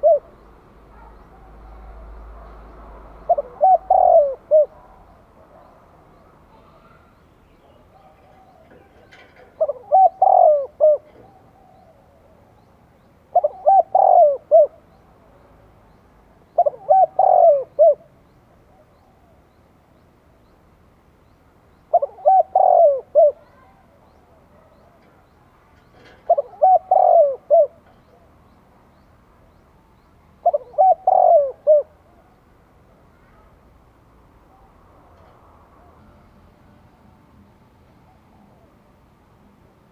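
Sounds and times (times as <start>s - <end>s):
dove cooing: 0.0s - 2.3s, 3.2s - 5.8s, 6.5s - 12.7s, 13.3s - 15.0s, 16.5s - 19.4s, 21.9s - 28.5s, 30.4s - 32.4s.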